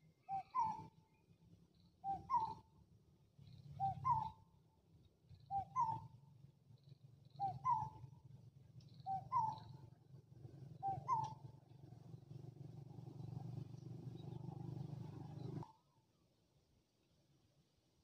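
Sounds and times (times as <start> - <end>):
low steady rumble: 6.4 - 15.6.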